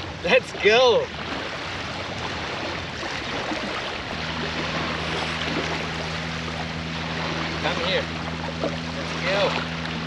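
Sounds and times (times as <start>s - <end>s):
wind and water rushing: 0.0s - 10.0s
motor humming low: 2.0s - 10.0s.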